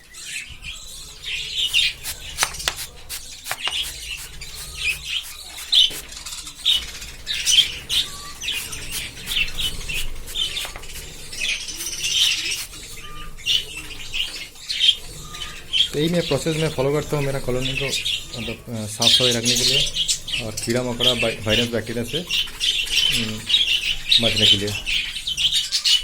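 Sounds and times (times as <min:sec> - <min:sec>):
budgerigars chirping: 0:00.0 - 0:26.0
sharp clicks: 0:01.8 - 0:04.0.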